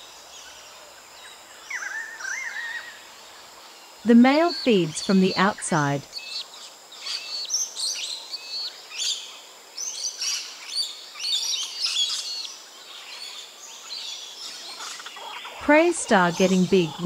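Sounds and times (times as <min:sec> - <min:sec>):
faint outdoor hiss: 0:00.0 - 0:17.0
birds chirping: 0:04.0 - 0:09.2, 0:09.9 - 0:17.0.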